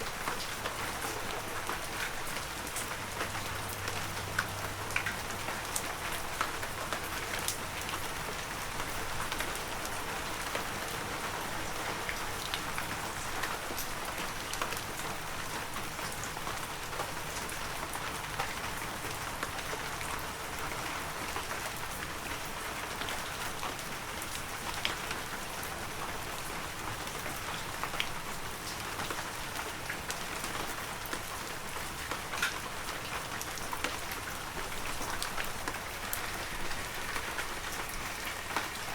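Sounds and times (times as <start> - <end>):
raindrops pattering: 0.0 - 38.9
heavy rain hissing: 35.3 - 38.9.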